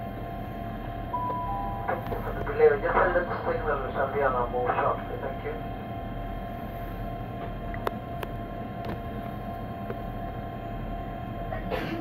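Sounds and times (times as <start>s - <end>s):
train electrical hum: 0.0s - 12.0s
low rumble: 1.2s - 3.9s.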